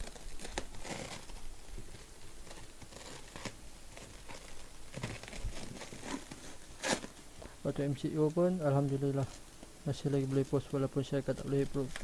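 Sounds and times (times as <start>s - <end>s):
packaging rustling and tearing: 0.0s - 7.3s, 10.2s - 12.0s.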